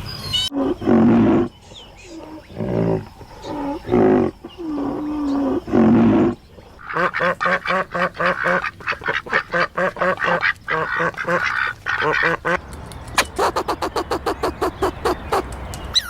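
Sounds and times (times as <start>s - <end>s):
drawn-out animal calls: 0.5s - 16.0s
duck quacking: 6.8s - 12.6s, 13.2s - 15.4s.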